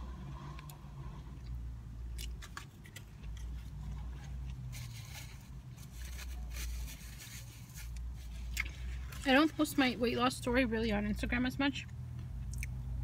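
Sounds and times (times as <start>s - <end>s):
steady low hum: 0.0s - 13.0s
paper wrapper crinkling: 2.4s - 8.5s.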